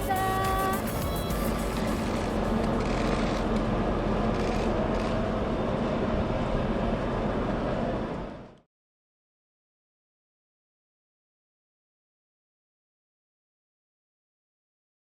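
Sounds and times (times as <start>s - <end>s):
passing traffic: 0.0s - 8.7s.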